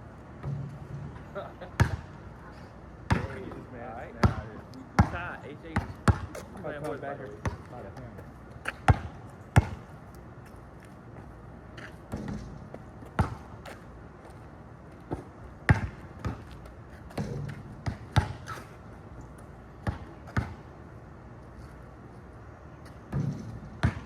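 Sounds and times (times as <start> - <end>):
basketball bouncing on hard surface: 1.8 - 2.0, 3.1 - 3.6, 4.2 - 5.2, 5.8 - 6.5, 7.4 - 7.7, 8.7 - 9.8, 12.1 - 13.8, 15.1 - 16.5, 17.1 - 18.6, 23.1 - 24.0.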